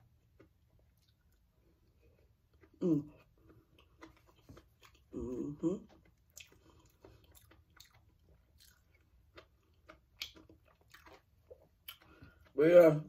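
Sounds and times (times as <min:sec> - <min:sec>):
wet chewing mouth sounds: 0:00.2 - 0:12.6
person humming: 0:02.8 - 0:03.2, 0:05.1 - 0:05.9.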